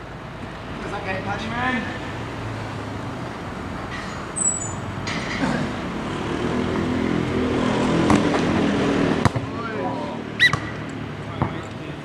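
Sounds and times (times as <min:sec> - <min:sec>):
background traffic noise: 0:00.0 - 0:12.0
brief high squeal: 0:04.4 - 0:04.8.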